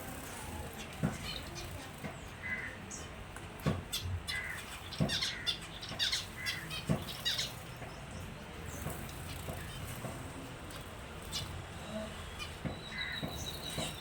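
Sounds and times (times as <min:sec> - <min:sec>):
finches chirping: 0:03.9 - 0:10.0, 0:10.8 - 0:14.0.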